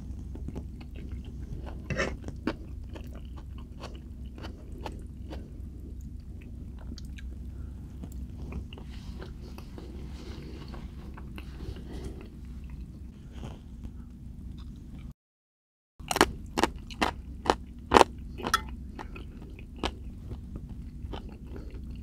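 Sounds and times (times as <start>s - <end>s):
close chewing: 0.0s - 15.1s, 16.1s - 22.0s.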